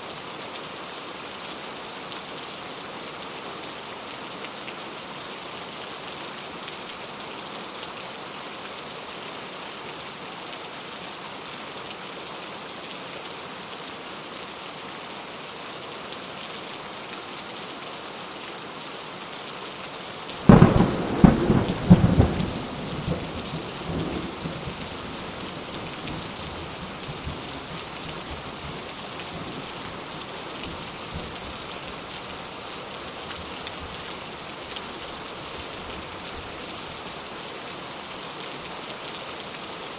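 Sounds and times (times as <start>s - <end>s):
rain falling: 0.0s - 39.9s
close thunderclap: 20.4s - 27.5s.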